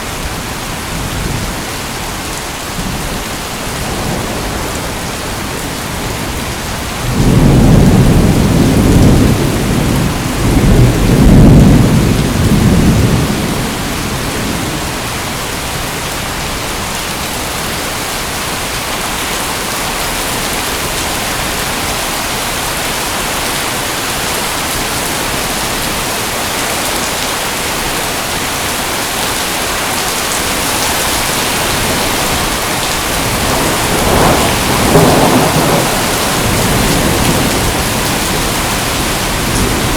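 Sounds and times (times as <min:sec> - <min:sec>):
heavy rain: 0:00.0 - 0:39.9
thunder rumbling: 0:02.8 - 0:15.1, 0:30.3 - 0:39.9.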